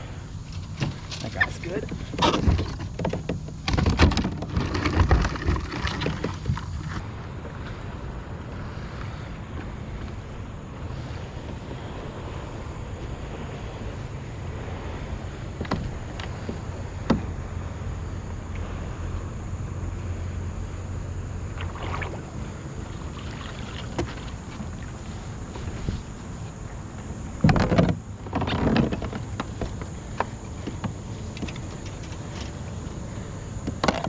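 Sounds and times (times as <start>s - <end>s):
water around kayak: 0.0s - 34.0s
wind: 0.0s - 34.0s.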